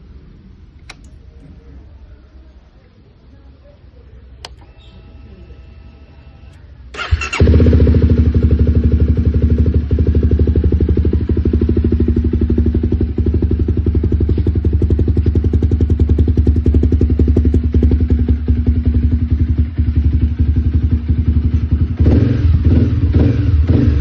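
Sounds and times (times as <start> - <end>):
motorcycle engine idling: 6.4 - 24.0.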